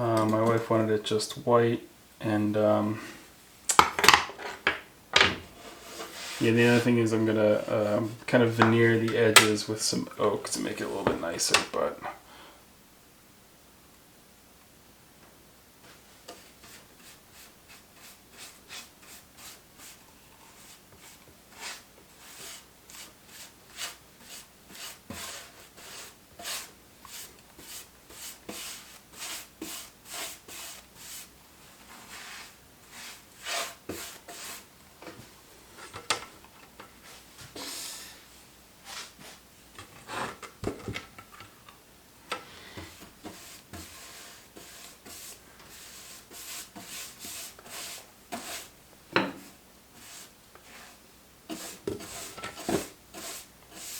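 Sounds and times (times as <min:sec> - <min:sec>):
paint applicator rubbing wood: 0:16.4 - 0:31.3, 0:31.9 - 0:34.7, 0:42.8 - 0:48.7, 0:49.4 - 0:53.9.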